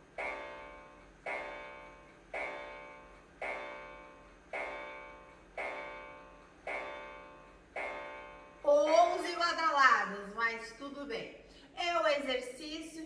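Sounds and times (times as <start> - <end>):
clock striking: 0.0 - 9.3.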